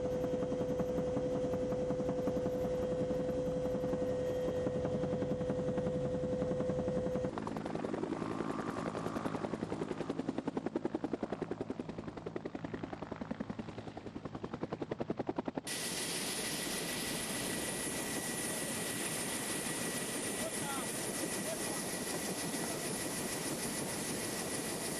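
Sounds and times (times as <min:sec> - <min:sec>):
helicopter rotor chopping: 0:00.3 - 0:24.9.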